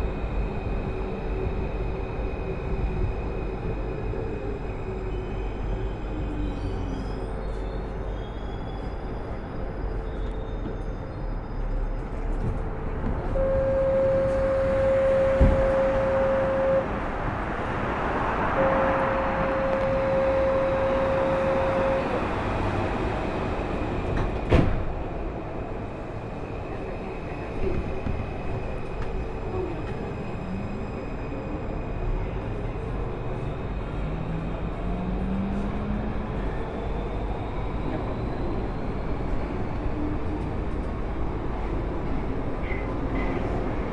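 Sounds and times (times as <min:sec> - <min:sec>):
train wheels rumbling on rail: 0:00.0 - 0:43.9
long steady tones: 0:13.2 - 0:17.8, 0:18.4 - 0:22.8.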